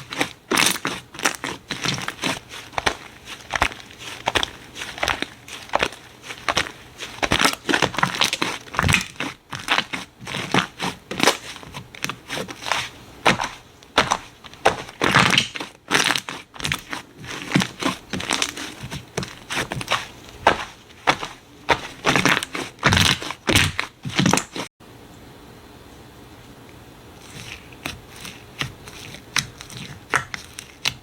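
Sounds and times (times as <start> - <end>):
slime crackling and popping: 0.0 - 24.7.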